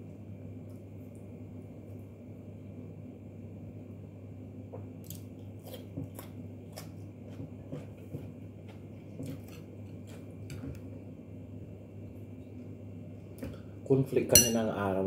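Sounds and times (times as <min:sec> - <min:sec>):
steady low hum: 0:00.0 - 0:15.0
food chewing with crisp crunches: 0:04.9 - 0:11.0.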